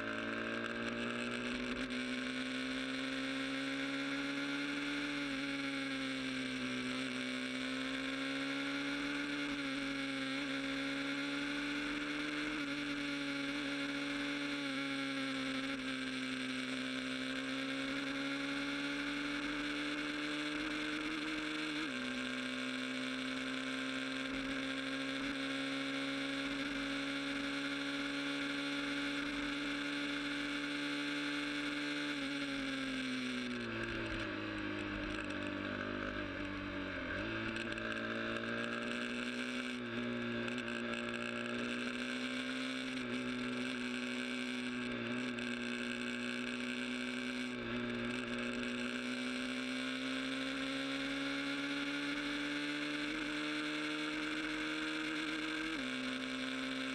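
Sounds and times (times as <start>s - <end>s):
motorcycle engine cruising: 0.0s - 56.9s.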